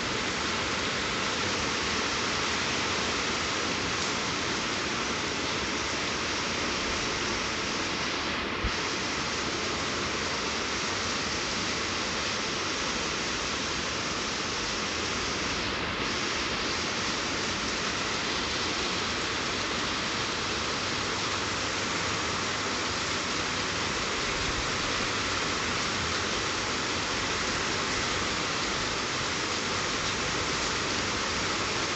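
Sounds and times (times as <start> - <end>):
steady rain hiss: 0.0 - 31.9.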